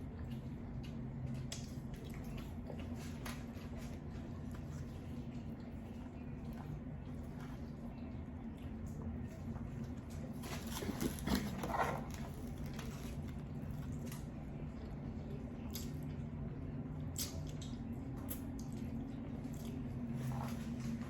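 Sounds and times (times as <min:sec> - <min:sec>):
chewing with wet mouth clicks: 0:00.0 - 0:10.3, 0:15.6 - 0:16.4, 0:17.0 - 0:20.3
steady low hum: 0:00.0 - 0:21.0.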